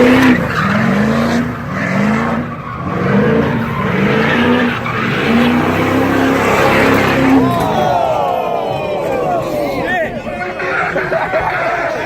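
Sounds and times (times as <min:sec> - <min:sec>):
truck engine revving: 0:00.0 - 0:12.0
tyres skidding on pavement: 0:00.0 - 0:12.0.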